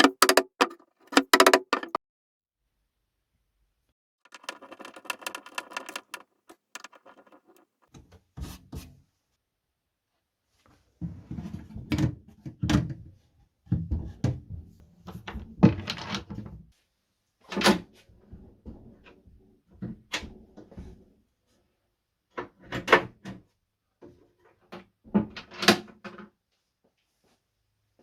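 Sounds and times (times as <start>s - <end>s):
wood knocking on wood: 0.0s - 2.0s, 4.3s - 7.6s.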